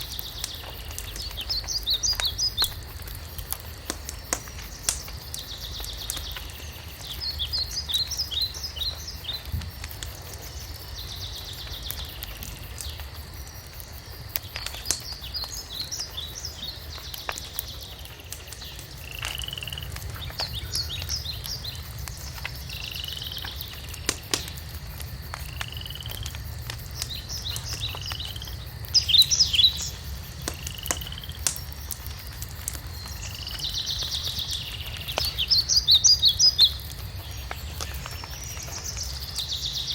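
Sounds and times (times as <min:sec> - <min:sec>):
wood fire crackling and popping: 0:00.0 - 0:39.9
birds trilling and whistling: 0:00.1 - 0:02.7.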